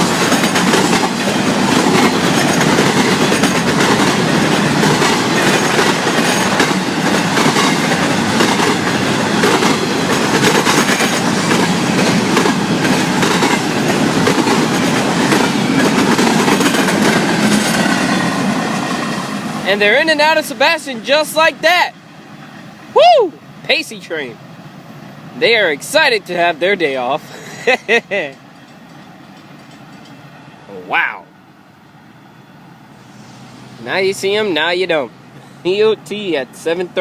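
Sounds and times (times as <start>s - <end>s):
wheels clacking over rail joints: 0.0s - 22.6s, 28.2s - 30.5s
freight train rumble and rattle: 0.0s - 31.1s, 31.8s - 37.0s.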